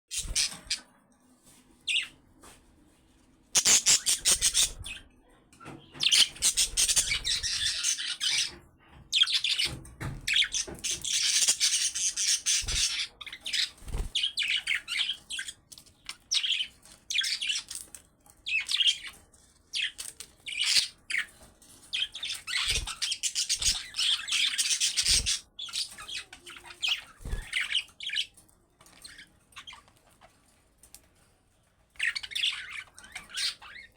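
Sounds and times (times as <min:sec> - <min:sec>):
budgerigars chattering and warbling: 0:03.6 - 0:05.1, 0:05.9 - 0:15.6, 0:22.0 - 0:28.3, 0:32.0 - 0:33.9.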